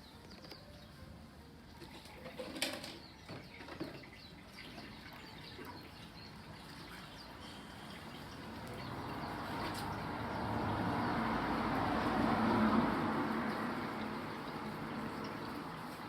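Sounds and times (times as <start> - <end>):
small birds chirping: 0.0 - 1.1, 2.7 - 11.7.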